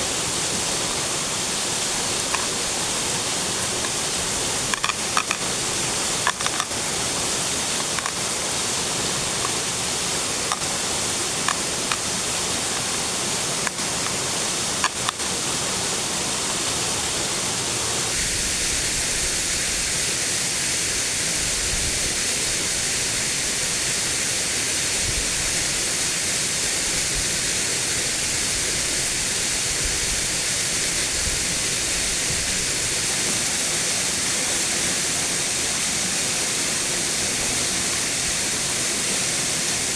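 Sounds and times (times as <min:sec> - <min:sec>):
waterfall rushing: 0:00.0 - 0:39.9
sharp clicks: 0:02.1 - 0:07.0, 0:07.7 - 0:08.3.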